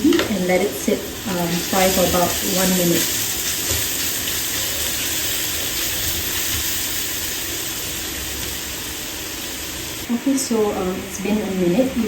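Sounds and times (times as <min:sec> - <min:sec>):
paste sizzling in hot oil: 0:00.9 - 0:10.1.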